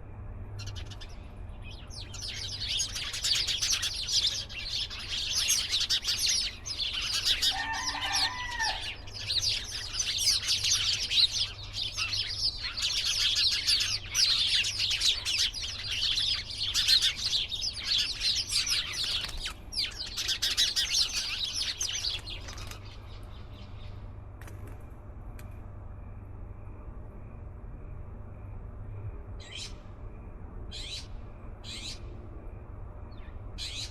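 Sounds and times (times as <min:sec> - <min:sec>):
lower bird call: 0:00.6 - 0:23.8
small birds chirping: 0:00.6 - 0:24.1, 0:30.7 - 0:32.1.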